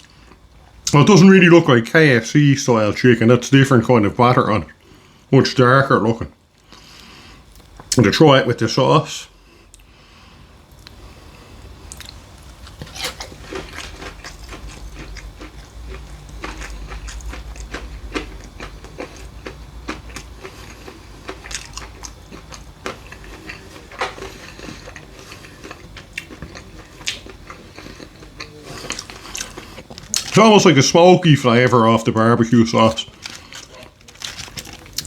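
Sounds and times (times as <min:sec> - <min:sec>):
person chewing crunchy fried chicken: 0:00.0 - 0:01.2, 0:10.7 - 0:35.0.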